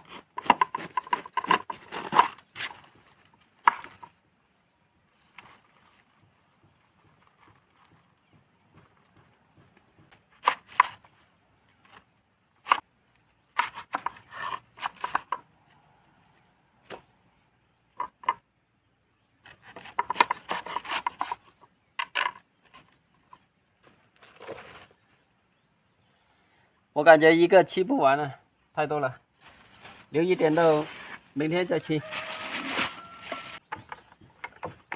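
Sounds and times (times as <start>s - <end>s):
knife cutting cabbage: 19.4s - 21.4s.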